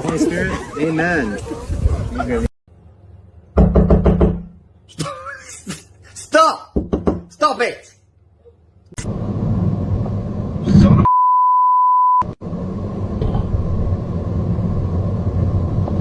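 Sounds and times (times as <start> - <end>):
loud low rumbling noise: 9.0 - 11.1, 12.4 - 16.0
censor bleep: 11.1 - 12.3.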